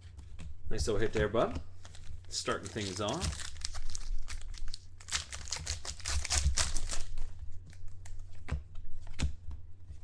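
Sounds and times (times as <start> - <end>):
cards and plastic packaging crinkling: 1.0 - 8.5.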